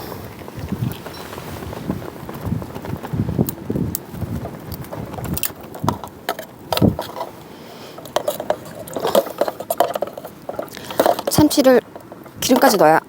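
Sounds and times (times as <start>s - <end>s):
cooking utensils clicking and scraping: 5.6s - 13.0s.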